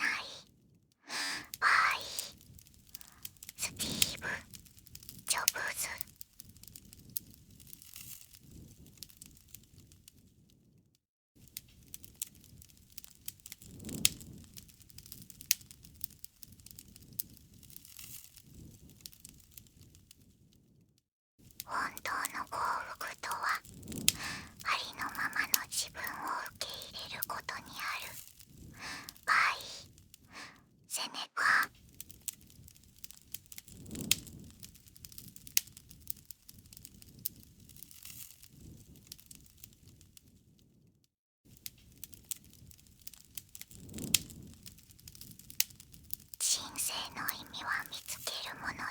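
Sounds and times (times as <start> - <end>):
campfire crackling: 1.1 - 10.2, 11.4 - 20.3, 21.4 - 40.4, 41.5 - 48.9
low rumble of flame: 2.3 - 10.8, 11.4 - 20.8, 21.4 - 30.9, 31.7 - 40.9, 41.5 - 46.4
sharp pops of burning wood: 6.0 - 9.9, 11.5 - 19.9, 31.8 - 39.8, 41.5 - 46.4.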